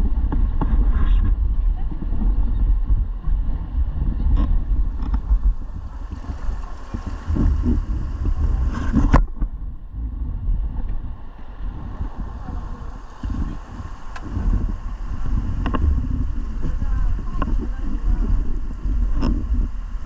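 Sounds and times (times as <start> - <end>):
wind buffeting microphone: 0.0 - 20.0
rushing river water: 4.6 - 9.4, 11.0 - 20.0.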